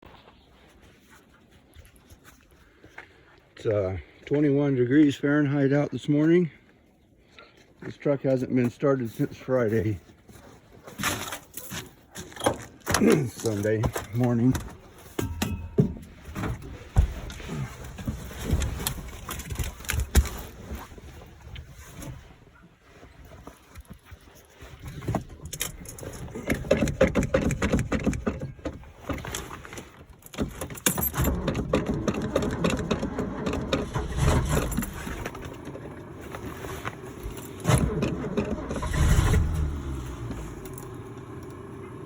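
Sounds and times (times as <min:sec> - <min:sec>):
engine starter cranking: 0:25.5 - 0:29.3, 0:30.7 - 0:42.0.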